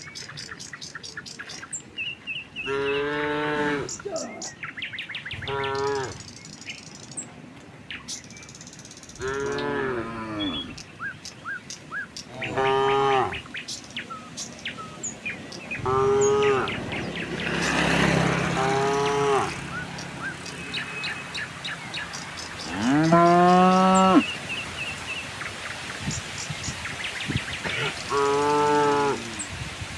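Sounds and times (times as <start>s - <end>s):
small birds chirping: 0.0s - 29.9s
cows mooing: 2.6s - 4.5s, 5.4s - 6.2s, 9.2s - 10.8s, 12.3s - 13.5s, 15.7s - 20.0s, 22.5s - 24.5s, 27.6s - 29.5s.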